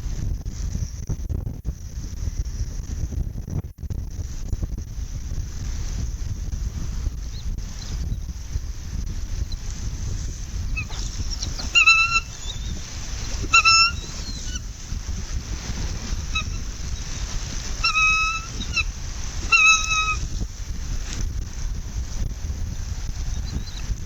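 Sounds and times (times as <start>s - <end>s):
wind rumble on microphone: 0.0s - 24.0s
short flat bird calls: 10.8s - 12.8s, 13.4s - 14.7s, 17.7s - 20.3s.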